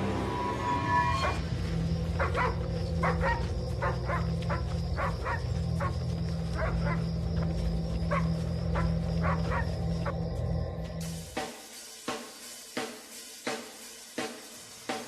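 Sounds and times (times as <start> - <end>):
dog barking: 2.2 - 6.0, 6.6 - 7.1, 8.0 - 10.1.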